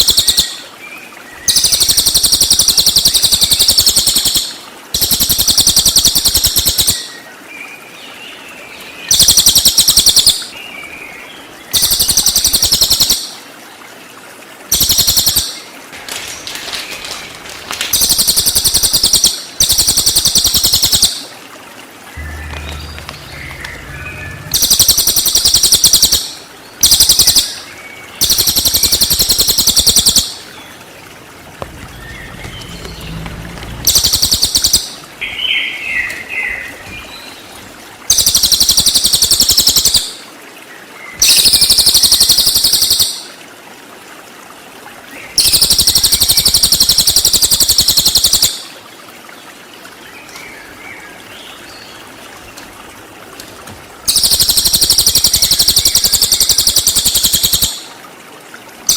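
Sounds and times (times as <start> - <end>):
faint bird notes: 22.1 - 25.7, 30.3 - 37.4
high-pitched bird song bursts: 22.2 - 27.6.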